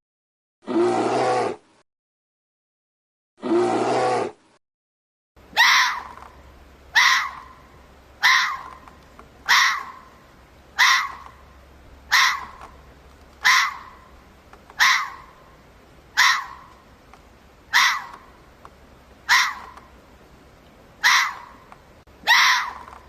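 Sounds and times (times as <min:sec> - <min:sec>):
harsh animal call: 0:00.7 - 0:01.7, 0:03.4 - 0:04.4, 0:05.5 - 0:06.3, 0:06.9 - 0:07.6, 0:08.2 - 0:10.2, 0:12.1 - 0:12.8, 0:22.2 - 0:23.0.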